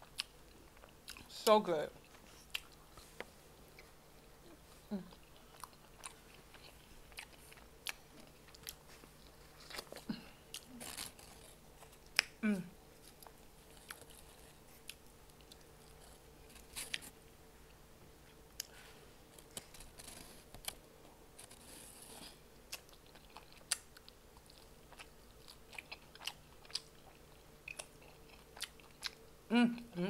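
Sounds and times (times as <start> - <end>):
chicken wing being chewed: 2.0 - 17.2, 21.4 - 29.2.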